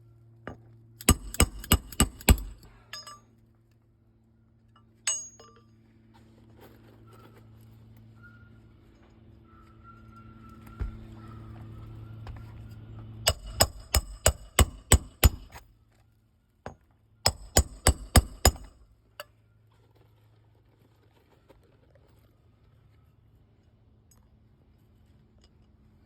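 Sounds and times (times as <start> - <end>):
hammer striking metal: 1.0 - 3.2, 5.1 - 5.6, 13.2 - 15.6, 17.3 - 18.8.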